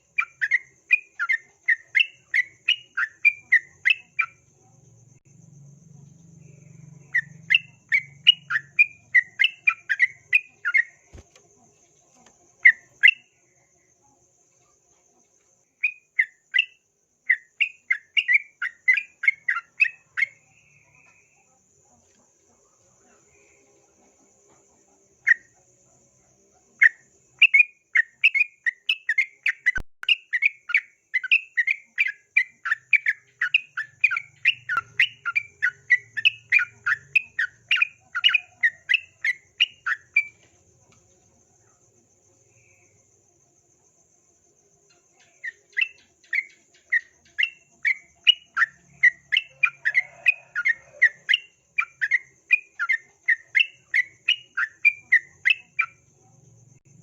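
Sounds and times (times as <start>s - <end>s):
bird song of sharp repeated notes: 0.0s - 4.5s, 6.4s - 13.5s, 15.7s - 21.4s, 26.8s - 40.5s, 44.9s - 56.1s.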